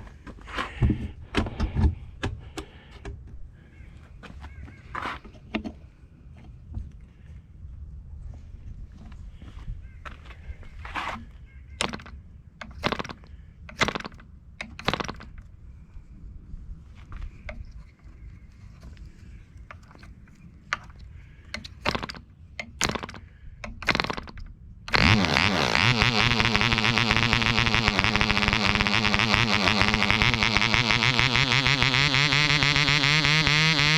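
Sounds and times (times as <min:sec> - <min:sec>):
model engine running: 0:11.8 - 0:12.1, 0:12.8 - 0:13.2, 0:13.8 - 0:14.2, 0:14.8 - 0:15.3, 0:21.9 - 0:22.2, 0:22.8 - 0:23.2, 0:23.8 - 0:33.9
model engine pops: 0:11.8 - 0:15.4, 0:21.6 - 0:33.9.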